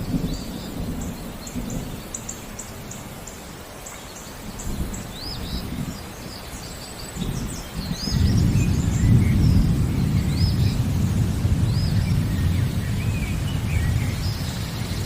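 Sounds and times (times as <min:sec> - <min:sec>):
low rumbles of thunder: 0:00.0 - 0:03.2, 0:04.5 - 0:15.0
birds chirping: 0:00.0 - 0:15.0
steady rain: 0:00.0 - 0:15.0.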